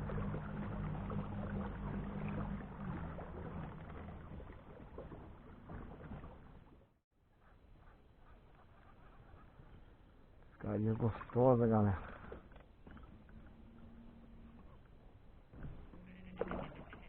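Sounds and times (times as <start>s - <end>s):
low hum: 0.0s - 6.8s, 12.8s - 17.0s
water splashing around kayak: 0.0s - 7.0s, 8.3s - 17.0s.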